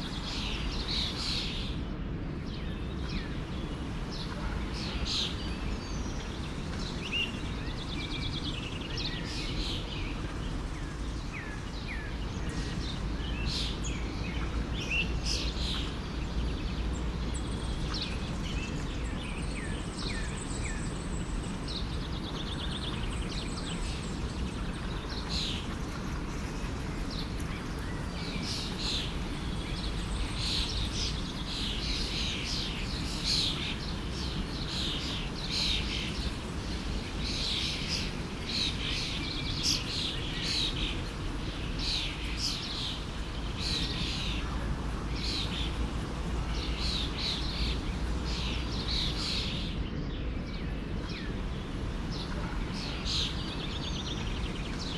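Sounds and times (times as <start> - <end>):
forest stream rushing: 0.0 - 1.7, 2.7 - 49.8, 50.4 - 54.9
bird chirps: 39.6 - 49.8.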